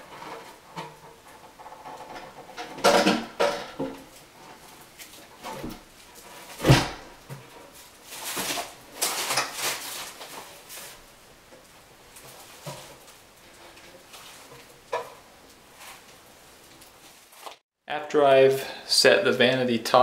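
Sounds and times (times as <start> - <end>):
vanity top scraping and knocking: 0.0 - 16.2
heavy thump: 6.6 - 7.2.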